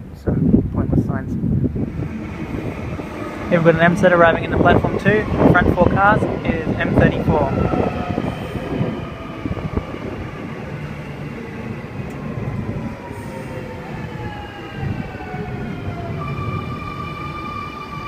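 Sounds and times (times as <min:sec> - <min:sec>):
rumbling train wheels: 0:01.4 - 0:18.0
electric train motor whine: 0:01.8 - 0:06.4.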